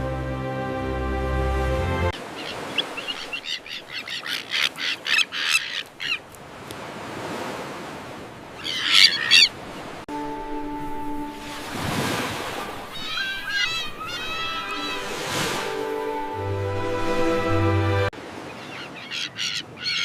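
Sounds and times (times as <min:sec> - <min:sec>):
music: 0:00.0 - 0:02.2, 0:10.1 - 0:12.8, 0:14.1 - 0:18.1
terns calling: 0:02.2 - 0:06.4, 0:08.5 - 0:11.7, 0:12.3 - 0:16.5, 0:18.5 - 0:20.0.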